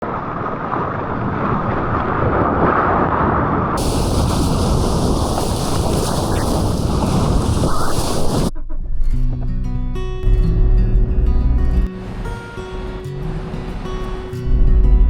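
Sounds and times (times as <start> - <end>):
loud steady rushing noise: 3.8 - 8.5, 11.9 - 15.0.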